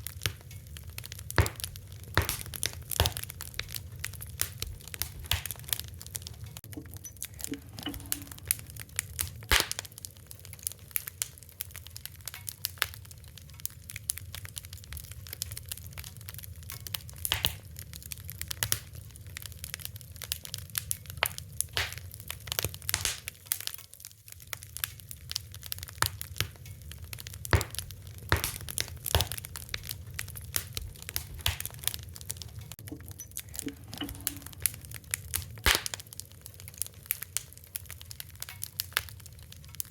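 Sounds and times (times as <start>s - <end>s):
low steady rumble: 0.0s - 10.8s, 26.8s - 37.1s
fire crackling: 0.0s - 39.9s.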